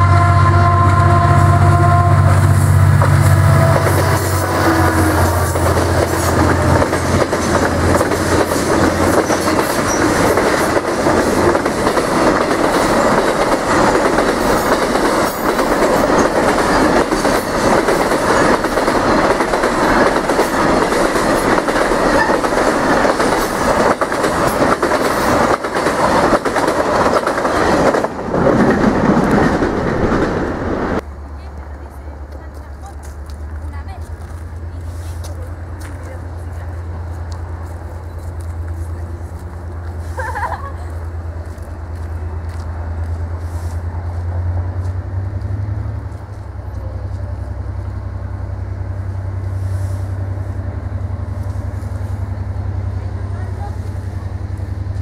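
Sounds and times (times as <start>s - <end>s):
train horn: 0.0s - 6.7s
deep locomotive engine rumble: 0.0s - 55.0s
train wheel clatter: 2.4s - 31.0s.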